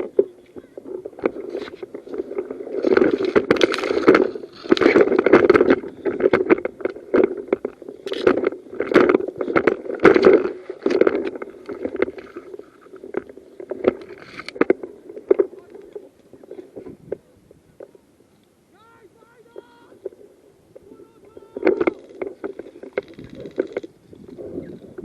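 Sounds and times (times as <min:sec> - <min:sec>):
footsteps: 0:00.0 - 0:17.2
clothing and kit rustling: 0:00.0 - 0:18.0.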